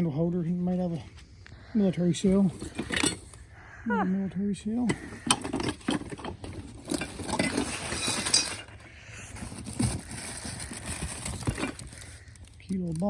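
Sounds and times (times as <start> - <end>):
rustling: 4.8 - 13.0.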